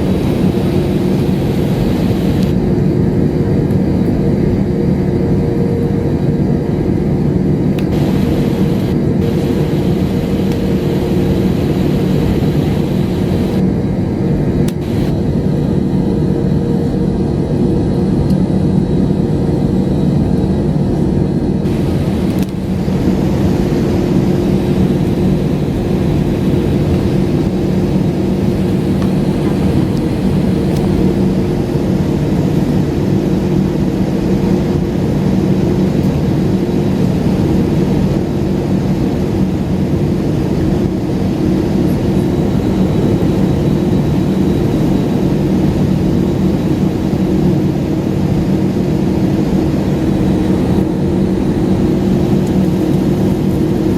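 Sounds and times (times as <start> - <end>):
jet airliner cabin rumble: 0.0 - 53.9.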